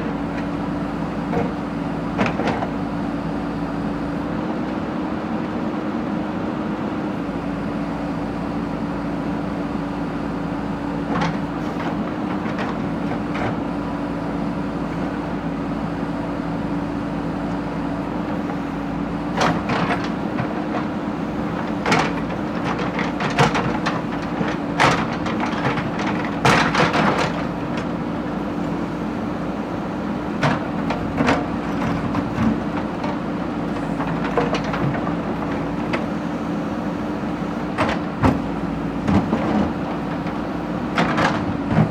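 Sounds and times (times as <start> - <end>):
backhoe engine running: 0.0 - 41.9.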